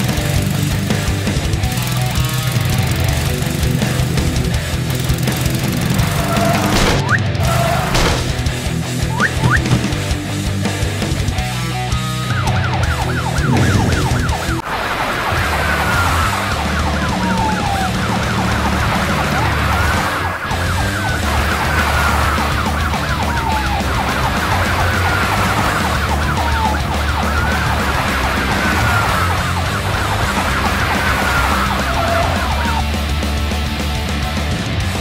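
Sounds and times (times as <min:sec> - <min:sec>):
background music: 0:00.0 - 0:35.0
siren fast warbling yelp: 0:09.1 - 0:09.8, 0:12.3 - 0:33.0
siren slow rising wail: 0:12.2 - 0:33.2.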